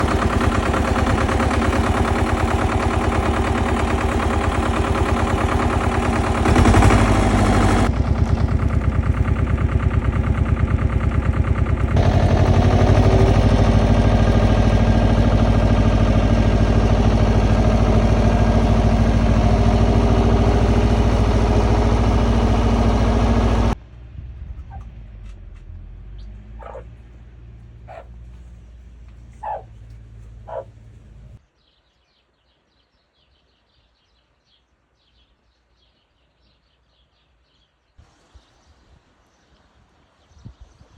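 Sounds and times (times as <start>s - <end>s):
engine running with rapid pulse: 0.0s - 31.4s
short animal calls: 29.4s - 29.8s.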